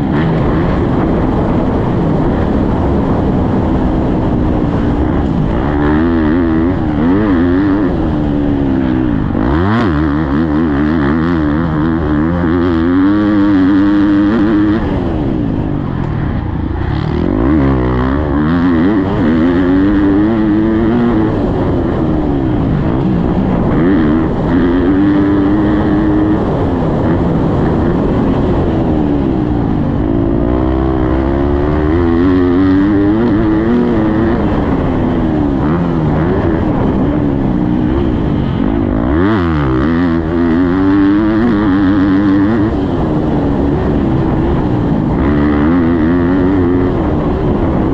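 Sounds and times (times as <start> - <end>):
motocross bike engine revving: 0.0 - 47.9.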